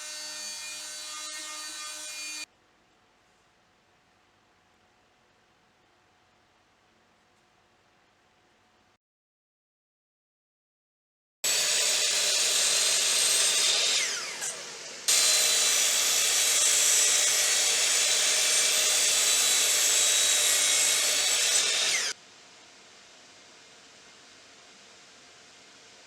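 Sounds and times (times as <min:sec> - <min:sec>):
power tool motor whining: 0:11.5 - 0:22.2.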